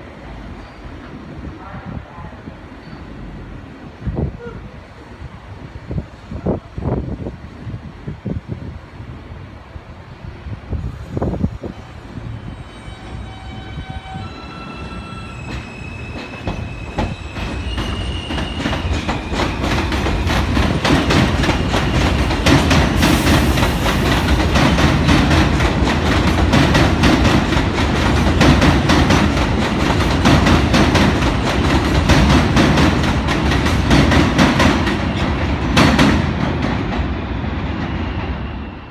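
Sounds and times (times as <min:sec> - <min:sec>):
train rumbling past: 0:00.0 - 0:38.9
train wheels squealing: 0:00.5 - 0:01.1, 0:02.8 - 0:03.4, 0:11.7 - 0:24.8, 0:37.7 - 0:38.9.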